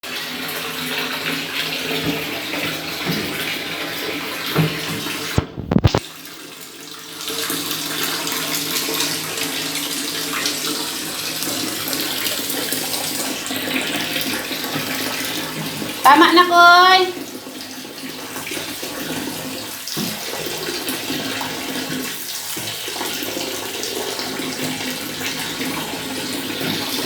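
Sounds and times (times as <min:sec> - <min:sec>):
water running into a bathtub: 0:00.0 - 0:27.0.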